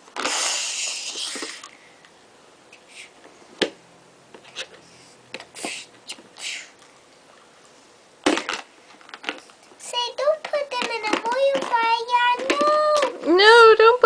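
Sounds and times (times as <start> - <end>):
hiss: 0.2 - 1.7, 5.6 - 6.7
plastic toys clicking and knocking: 8.3 - 13.3.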